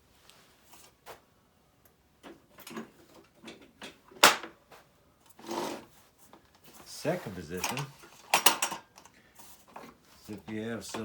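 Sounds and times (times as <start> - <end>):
fence scraping: 5.4 - 8.4.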